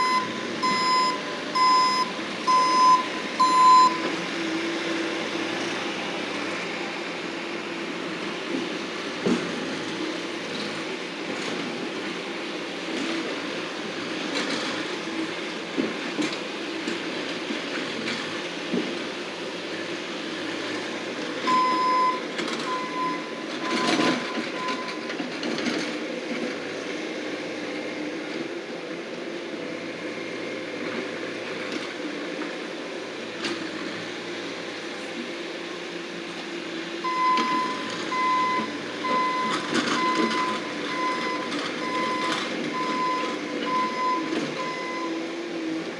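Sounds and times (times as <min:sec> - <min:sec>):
reversing alarm beeping: 0:00.0 - 0:04.1, 0:21.5 - 0:25.2, 0:37.0 - 0:45.2
skid-steer loader running: 0:00.0 - 0:45.9.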